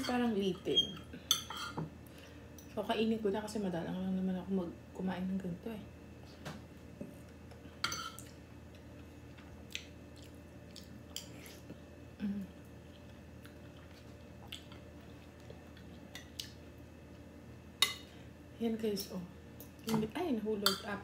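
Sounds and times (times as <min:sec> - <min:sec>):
faint steady hum: 0:00.0 - 0:21.0
person chewing: 0:08.1 - 0:11.8, 0:12.6 - 0:16.6.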